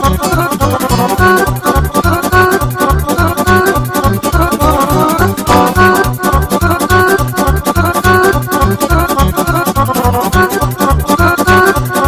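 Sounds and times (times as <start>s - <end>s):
band playing fast folk-dance tune: 0.0s - 12.0s
even bass beat: 0.0s - 12.0s.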